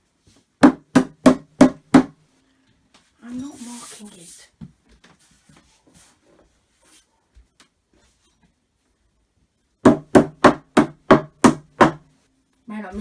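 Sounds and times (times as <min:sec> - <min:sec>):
knocks on wooden panel: 0:00.6 - 0:02.2, 0:09.8 - 0:12.0.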